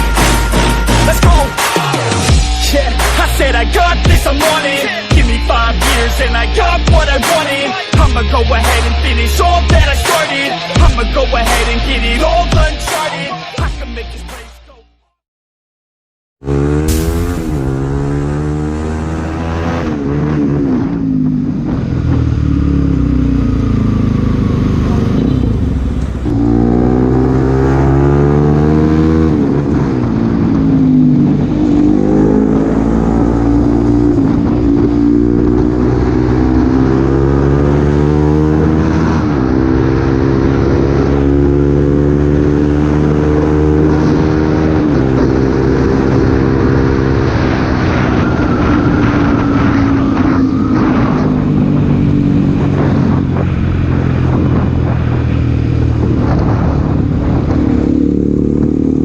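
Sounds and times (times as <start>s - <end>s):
motorcycle engine accelerating: 16.4s - 59.0s.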